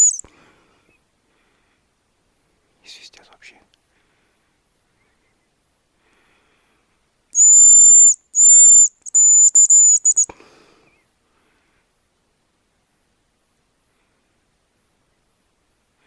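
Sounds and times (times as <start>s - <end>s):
decoy whistle blown: 0.0s - 0.2s, 7.4s - 10.3s.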